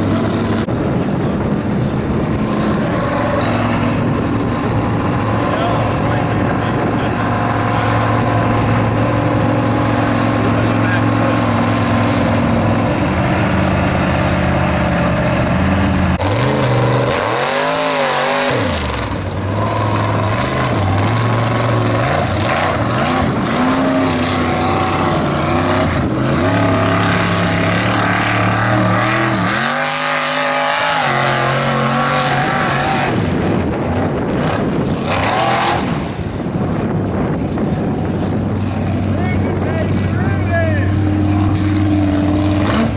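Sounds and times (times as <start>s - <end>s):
steady rushing noise: 0.0s - 13.2s
truck engine revving hard: 0.0s - 42.9s.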